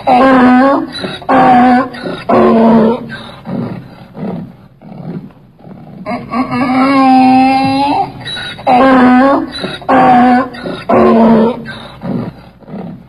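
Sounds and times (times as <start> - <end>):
donkey braying: 0.0 - 4.5, 5.9 - 13.0
donkey rasping breaths: 2.9 - 6.9, 8.0 - 8.7, 11.5 - 13.0.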